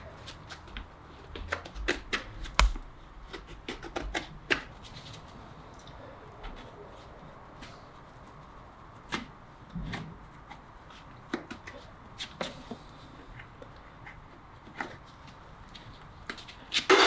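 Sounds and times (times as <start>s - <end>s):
dull thump: 2.6s - 3.0s
farrier's tools clicking on hoof: 2.6s - 3.0s.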